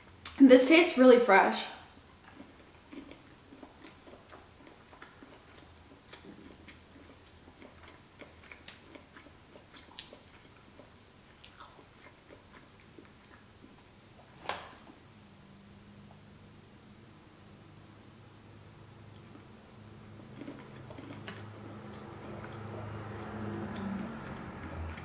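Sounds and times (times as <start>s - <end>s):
faint chewing: 1.9s - 14.3s, 18.9s - 25.0s.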